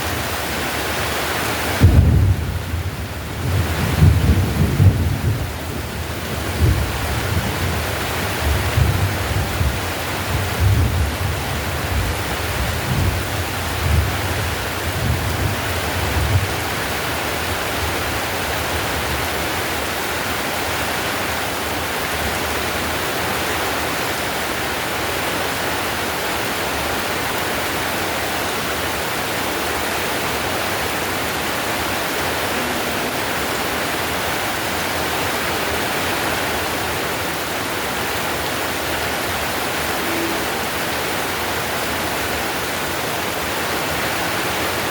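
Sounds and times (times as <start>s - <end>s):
heavy rain on tile roof: 0.0s - 44.9s.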